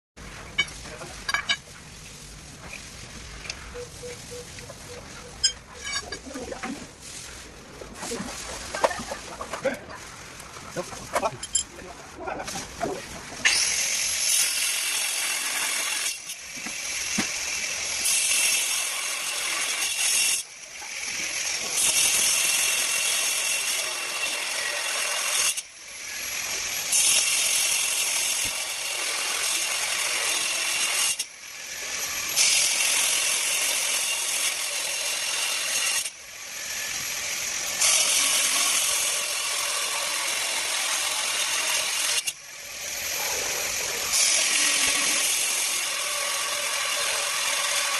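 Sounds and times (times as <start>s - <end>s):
angle grinder cutting steel: 13.4s - 47.9s.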